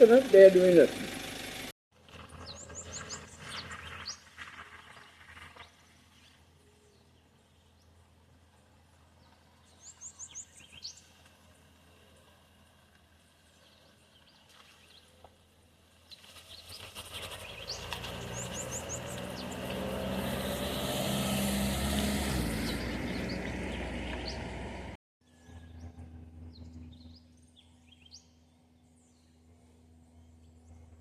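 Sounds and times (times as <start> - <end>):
birds chirping: 2.4 - 8.0, 16.1 - 20.8, 21.9 - 30.8
vehicle driving past: 16.3 - 27.7.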